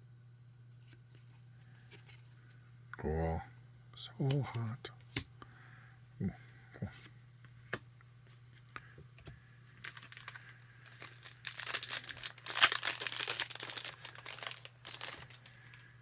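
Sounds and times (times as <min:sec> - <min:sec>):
wrapper tearing and crinkling: 0:09.8 - 0:15.8.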